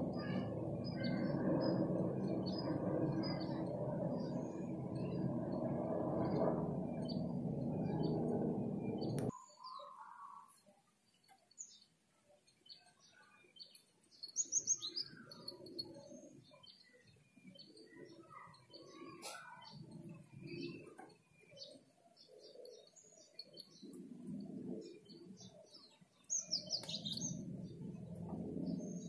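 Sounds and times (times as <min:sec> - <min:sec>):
steady low noise: 0:00.0 - 0:09.3, 0:26.5 - 0:29.0
small birds chirping: 0:00.0 - 0:29.0.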